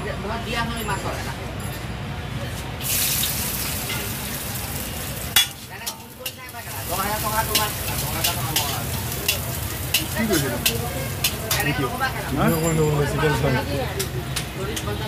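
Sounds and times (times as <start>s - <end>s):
food frying in hot oil: 2.8s - 15.0s.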